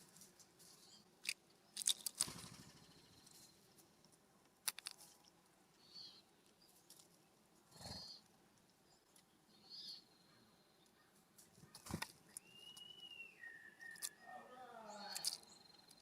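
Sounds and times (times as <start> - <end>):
short high bird calls: 11.8 - 16.0.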